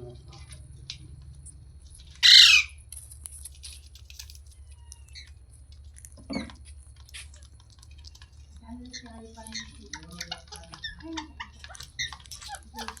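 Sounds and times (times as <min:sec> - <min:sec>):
parakeet harsh screech: 0:02.2 - 0:02.8.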